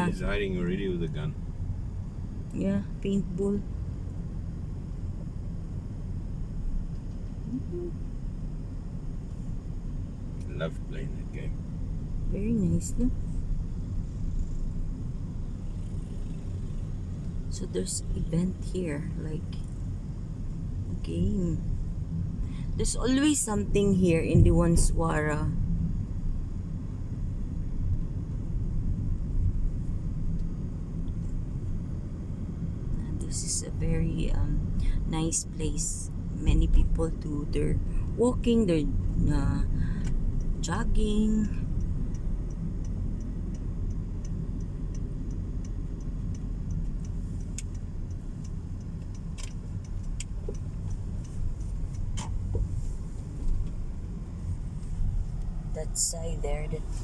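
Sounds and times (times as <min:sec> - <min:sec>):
car engine and tyres rumbling: 0:00.0 - 0:57.0
turn indicator ticking: 0:00.0 - 0:57.0
sharp clicks: 0:39.7 - 0:52.7.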